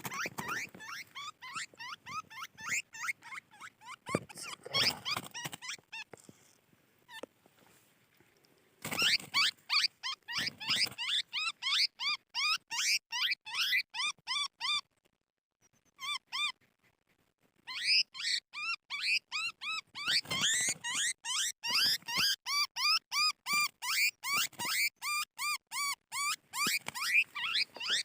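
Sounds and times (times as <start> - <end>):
animal high-pitched calls: 0.0 - 6.1, 8.9 - 14.9, 15.8 - 16.6, 17.6 - 28.0.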